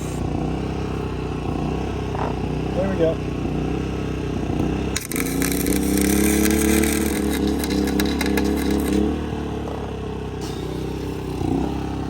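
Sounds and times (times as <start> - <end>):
generator running: 0.0 - 12.0
welder arc crackling: 5.0 - 9.1.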